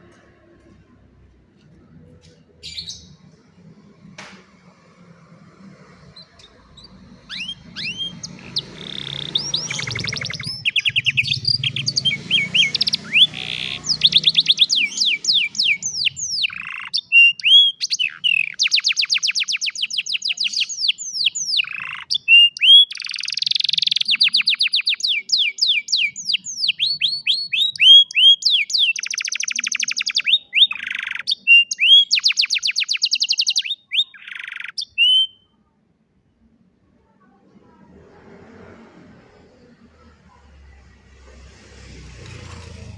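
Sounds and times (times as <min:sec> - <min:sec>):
canary singing: 0:02.6 - 0:04.0, 0:05.0 - 0:35.6.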